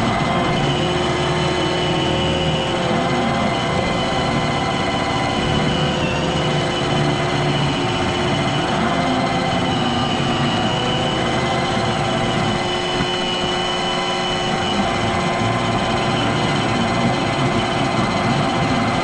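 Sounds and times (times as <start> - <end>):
robot vacuum running: 0.0 - 19.0.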